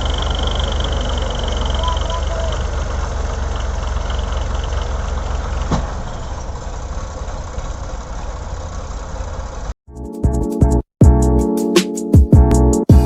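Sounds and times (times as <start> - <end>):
tractor diesel engine running: 0.0 - 9.8.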